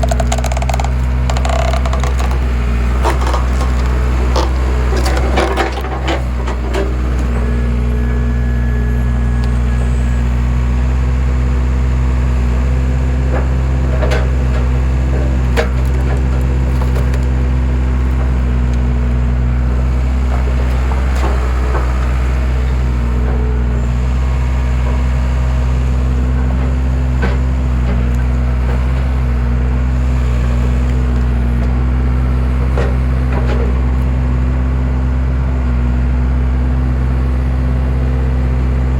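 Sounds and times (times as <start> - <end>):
logs splitting with sharp cracks: 0.0 - 5.3, 15.4 - 18.9
engine running steadily: 0.0 - 38.9.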